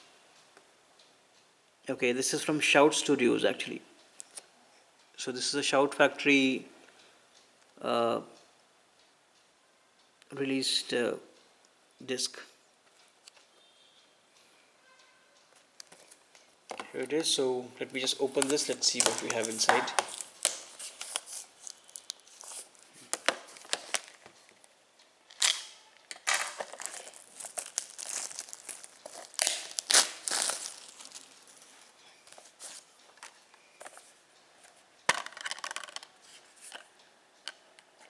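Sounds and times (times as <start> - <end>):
plastic wrap tearing and crinkling: 18.2 - 24.4, 25.3 - 32.9.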